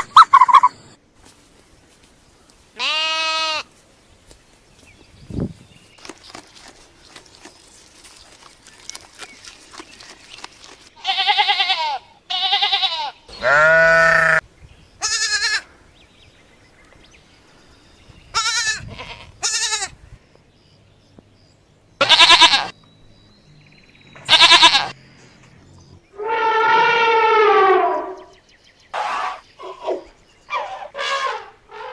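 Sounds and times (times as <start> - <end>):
goats bleating: 2.8 - 3.7, 11.0 - 14.4, 22.0 - 22.7, 24.3 - 25.0.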